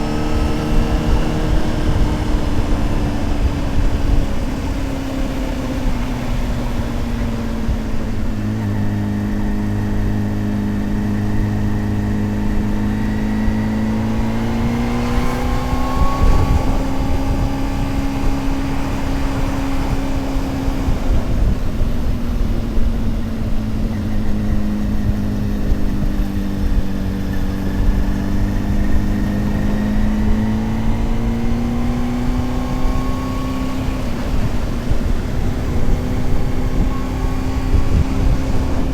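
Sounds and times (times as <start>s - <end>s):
motorcycle engine cruising: 0.0s - 38.9s
rushing wind noise: 0.0s - 38.9s.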